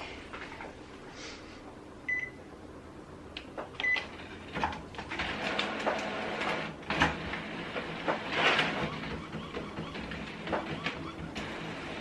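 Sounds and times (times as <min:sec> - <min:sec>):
printer control panel beeps: 0:02.1 - 0:02.4, 0:03.8 - 0:04.1, 0:08.6 - 0:11.8
printer mechanism clattering: 0:03.6 - 0:12.0.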